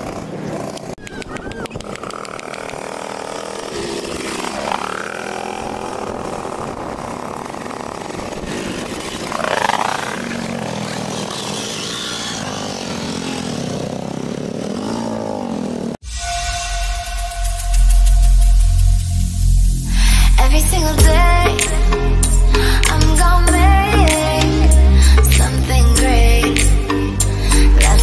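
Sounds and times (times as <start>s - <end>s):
motorcycle engines passing: 0.0s - 16.0s.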